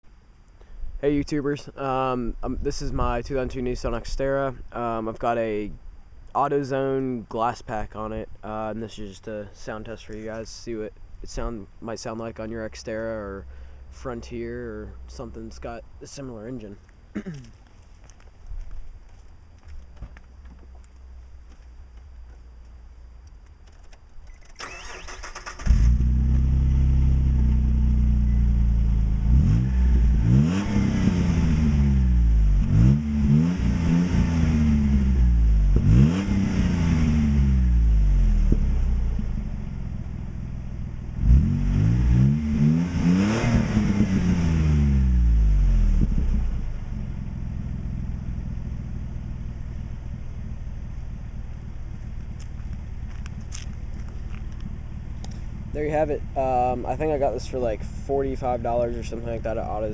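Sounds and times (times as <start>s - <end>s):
car engine cranking and revving: 24.3s - 59.9s.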